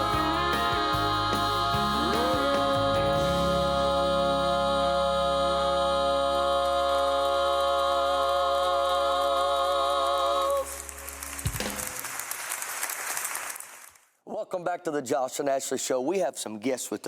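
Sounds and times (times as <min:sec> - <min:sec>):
gospel singing with vibrato: 0:00.0 - 0:12.3.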